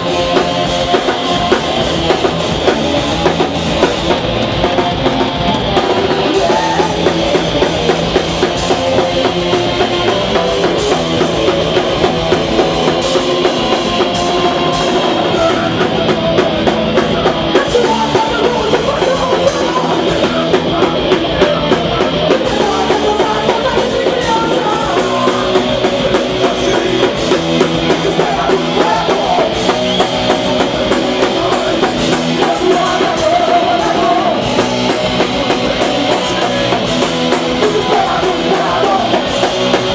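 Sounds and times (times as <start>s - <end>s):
bass guitar: 0.0s - 39.9s
distorted electric guitars: 0.0s - 39.9s
fast driving drums: 0.0s - 39.9s.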